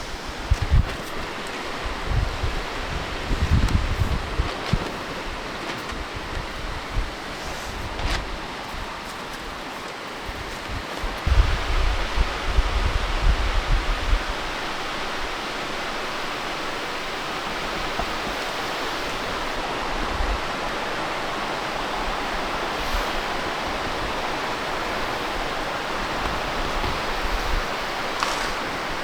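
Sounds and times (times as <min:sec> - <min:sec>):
wind buffeting microphone: 0:00.0 - 0:29.0
waterfall rushing: 0:11.4 - 0:29.0.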